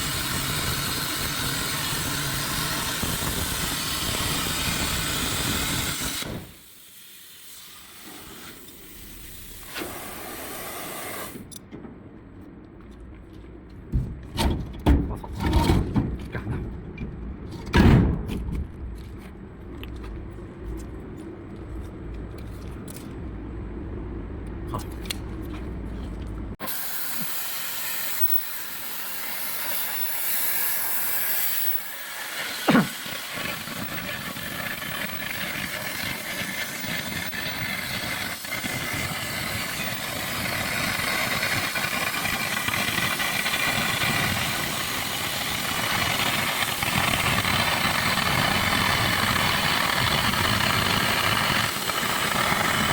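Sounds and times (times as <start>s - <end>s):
cutting torch hissing: 0.0s - 11.5s, 26.6s - 52.9s.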